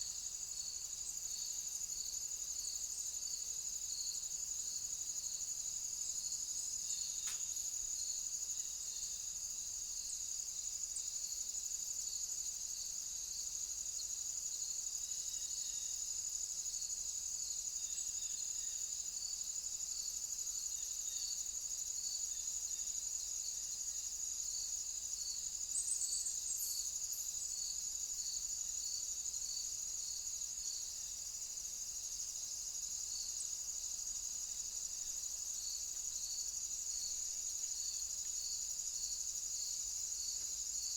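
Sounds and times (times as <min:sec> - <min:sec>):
lower slower cricket chirp: 0:00.0 - 0:40.9
crickets high-pitched trill: 0:20.4 - 0:40.9.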